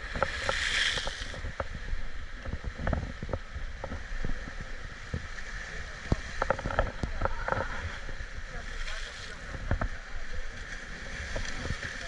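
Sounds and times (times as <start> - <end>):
paddle and hull knocks and creaks: 0.0 - 12.0
wind rumbling on microphone: 0.0 - 12.0
splash-like hiss: 0.2 - 1.4.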